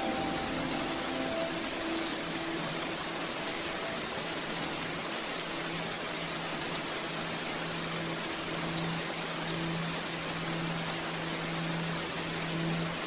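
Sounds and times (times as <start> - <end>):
faint low musical tones: 0.0 - 6.4
rain falling: 0.0 - 13.0.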